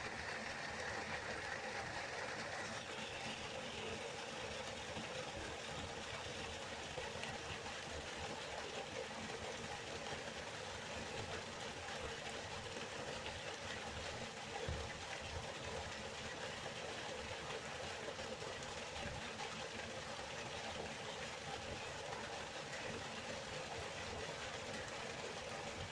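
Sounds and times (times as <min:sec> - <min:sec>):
river water flowing: 0:00.0 - 0:17.6.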